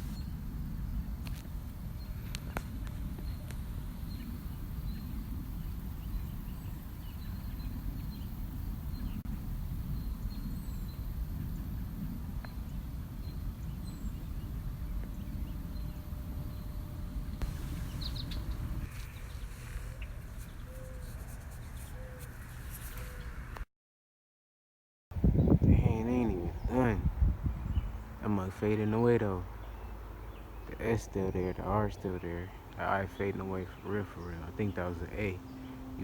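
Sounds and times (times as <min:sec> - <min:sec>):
bird calls: 0:12.4 - 0:23.4, 0:27.6 - 0:36.0
high bird chirps: 0:17.4 - 0:21.0.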